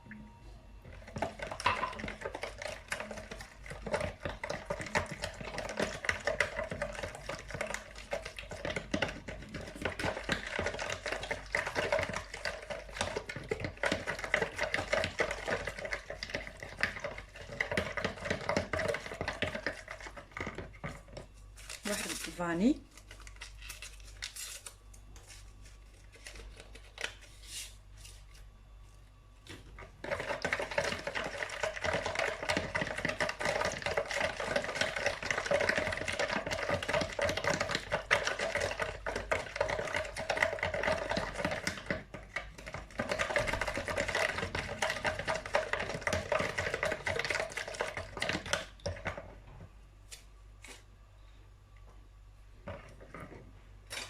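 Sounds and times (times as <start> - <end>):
whisk clicking against a bowl: 1.1 - 21.0, 30.0 - 49.2.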